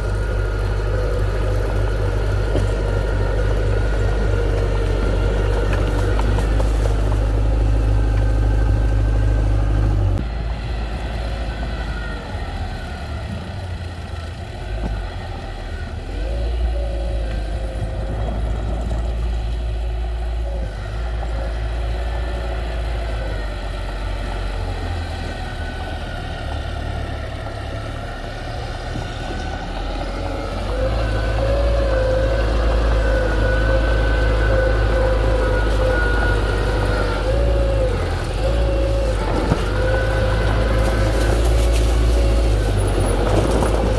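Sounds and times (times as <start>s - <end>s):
diesel engine of heavy machinery: 0.0s - 43.9s.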